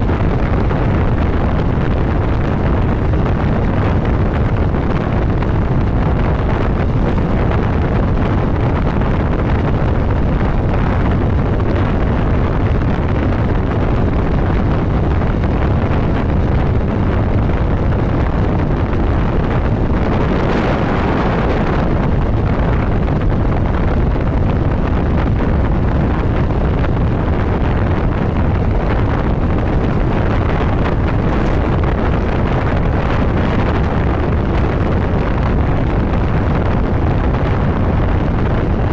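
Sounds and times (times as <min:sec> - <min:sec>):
motorcycle running: 0:00.0 - 0:38.9
wind rushing over microphone: 0:00.0 - 0:38.9.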